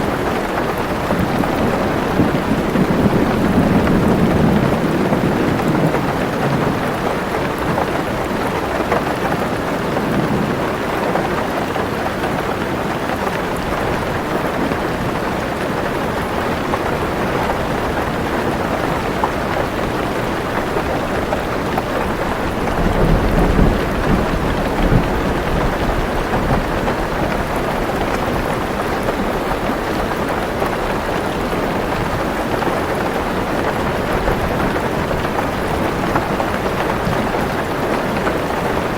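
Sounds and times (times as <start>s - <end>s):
low thunder rumbles: 0.0s - 8.5s, 16.7s - 29.6s
heavy rain on a car roof: 0.0s - 38.9s.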